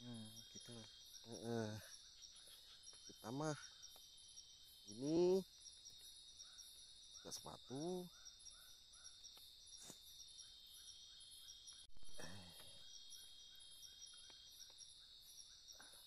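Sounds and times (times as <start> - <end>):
low human vocal sound: 0.0 - 0.5, 12.1 - 12.8
chorus of crickets: 0.0 - 16.0.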